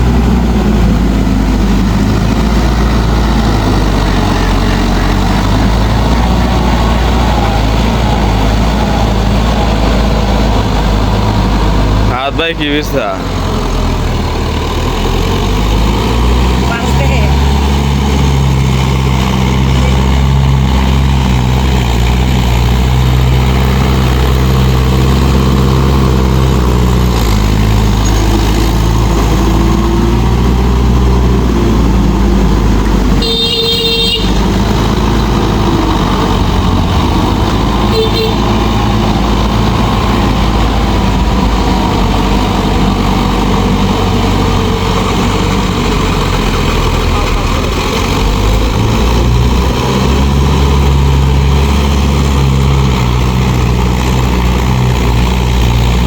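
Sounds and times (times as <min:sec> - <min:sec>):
tractor diesel engine running: 0:00.0 - 0:56.0
horn toot: 0:33.2 - 0:34.4, 0:37.9 - 0:38.6.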